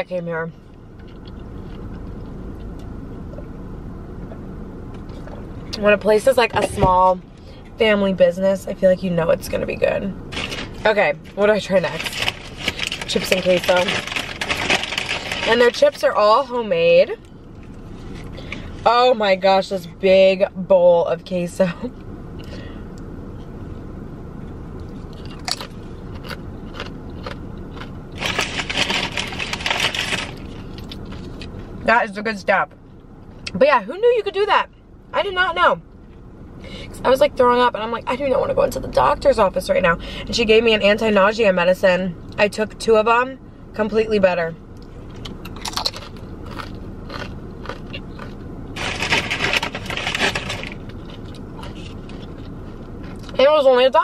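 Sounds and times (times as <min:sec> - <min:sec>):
steady low hum: 0:00.0 - 0:54.0
tortilla chip crunching: 0:10.3 - 0:10.8, 0:11.8 - 0:16.0, 0:24.8 - 0:31.6, 0:45.1 - 0:53.4.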